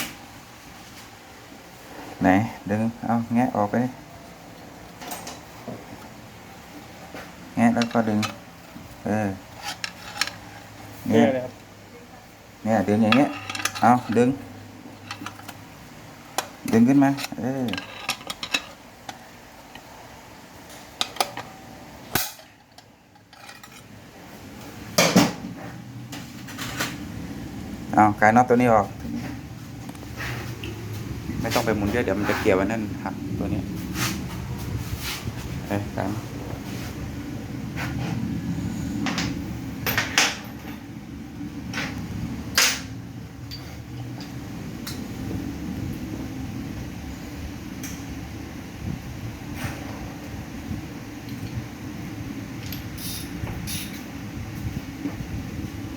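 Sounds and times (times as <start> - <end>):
steady low hum: 0.0 - 55.9
metal tools knocking on metal: 7.7 - 8.4, 13.1 - 14.3
metal parts clinking and clattering: 9.6 - 10.5, 13.1 - 14.3, 15.0 - 15.6, 17.1 - 18.8, 22.1 - 23.9.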